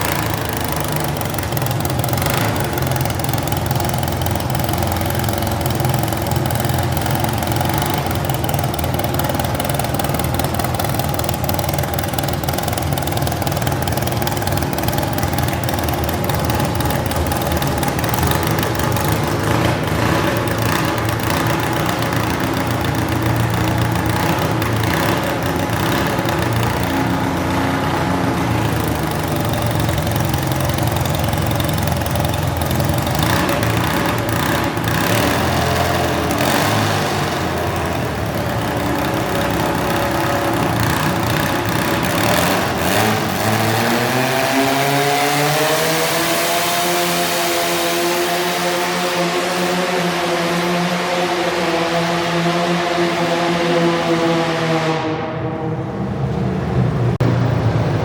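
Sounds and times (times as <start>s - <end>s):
garden tractor engine running: 0.0s - 46.8s.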